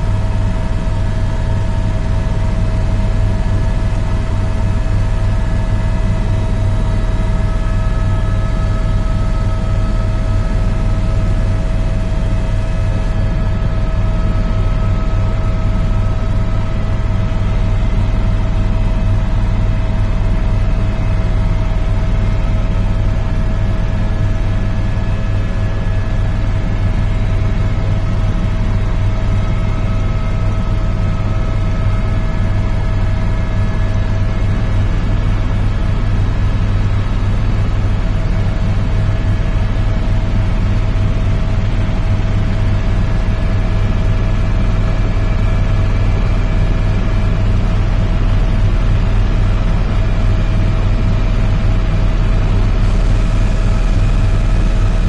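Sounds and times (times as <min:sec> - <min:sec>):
helicopter rotor and engine drone: 0:00.0 - 0:55.0.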